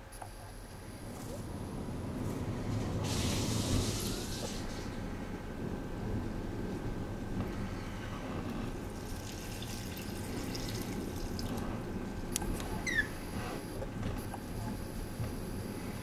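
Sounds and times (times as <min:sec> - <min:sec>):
wind buffeting microphone: 0:00.8 - 0:16.0.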